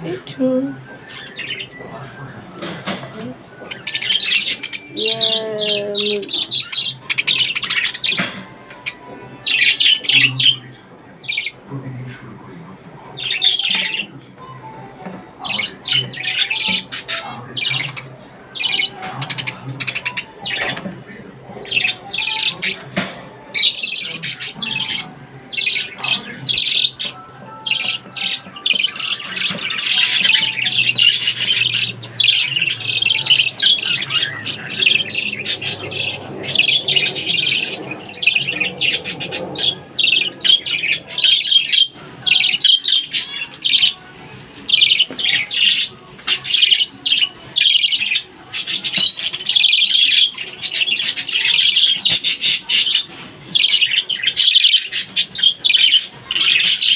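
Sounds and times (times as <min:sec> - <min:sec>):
pet birds chattering and squawking: 0:00.0 - 0:56.9.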